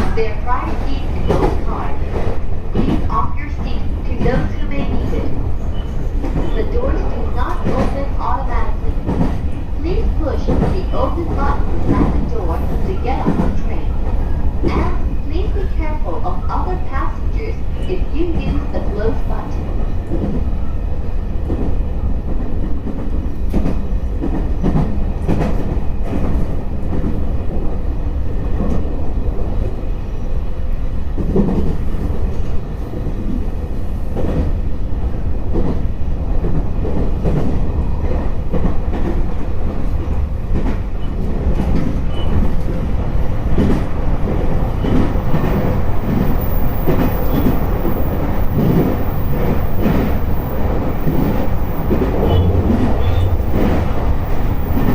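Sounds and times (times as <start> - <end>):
train wheels rumbling: 0.0 - 54.9.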